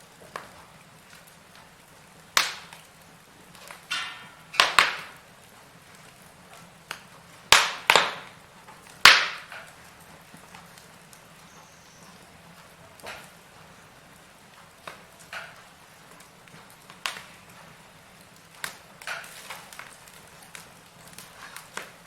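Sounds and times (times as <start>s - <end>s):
firewood crackling: 0.0s - 22.0s
sharp loud pops: 7.5s - 8.3s, 9.0s - 9.6s.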